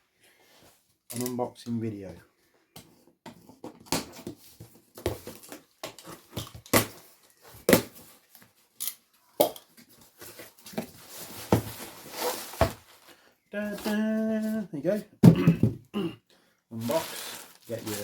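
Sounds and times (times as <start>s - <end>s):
packaging tearing and crinkling: 16.8s - 18.0s.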